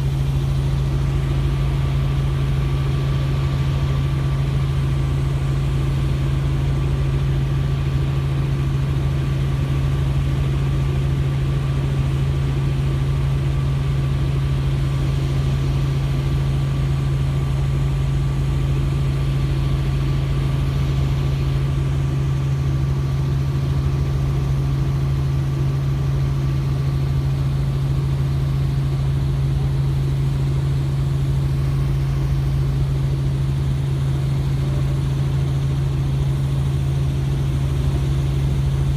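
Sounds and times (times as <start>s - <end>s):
helicopter drone: 0.0s - 38.9s
thin steady whine: 13.3s - 38.9s.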